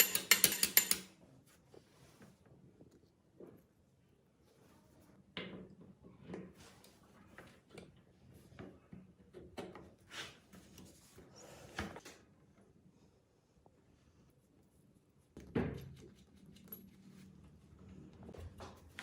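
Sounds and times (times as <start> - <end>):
tools knocking and scraping on workbench: 0.0 - 1.1.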